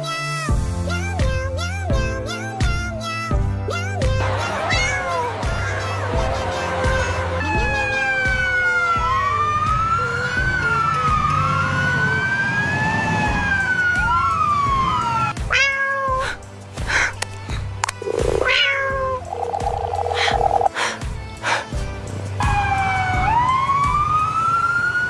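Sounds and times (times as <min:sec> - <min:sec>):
background music: 0:00.0 - 0:25.0
cat meowing: 0:04.7 - 0:05.7, 0:15.3 - 0:16.4, 0:18.0 - 0:21.6
siren-like wails: 0:07.3 - 0:15.3, 0:22.4 - 0:25.0.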